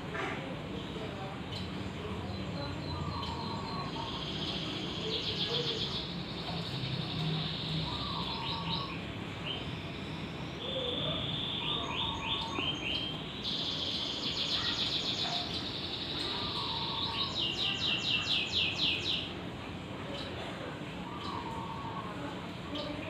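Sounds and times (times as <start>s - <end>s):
small birds trilling: 1.4s - 19.4s, 21.0s - 23.0s
dove cooing softly: 21.1s - 22.4s.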